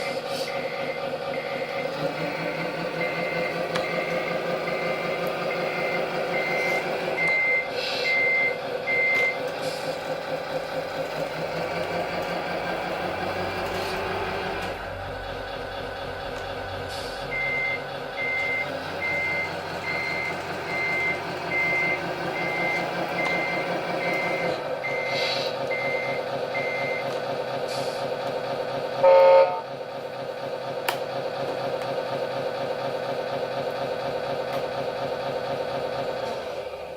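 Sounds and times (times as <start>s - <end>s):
reversing beeper: 0.0s - 9.5s, 16.6s - 27.2s
simulated diesel engine running: 0.0s - 36.9s
loud horn blast: 29.0s - 29.7s.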